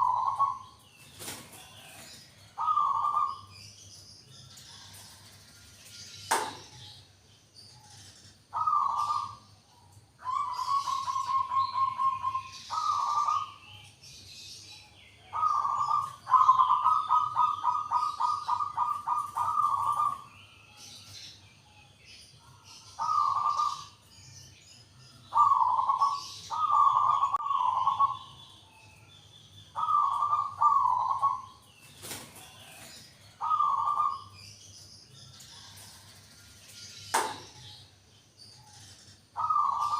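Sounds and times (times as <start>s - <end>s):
dove cooing: 0.0s - 2.0s, 2.6s - 3.5s, 8.5s - 9.4s, 10.2s - 13.7s, 15.2s - 20.3s, 23.0s - 24.0s, 25.3s - 28.4s, 29.8s - 34.3s, 39.4s - 39.9s.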